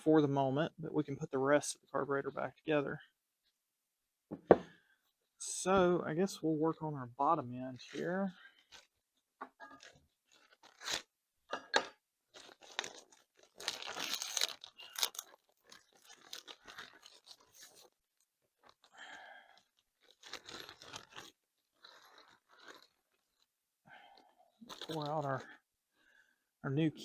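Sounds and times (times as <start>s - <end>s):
plastic packaging crinkling and tearing: 9.7s - 11.1s, 12.3s - 23.5s, 24.6s - 25.5s.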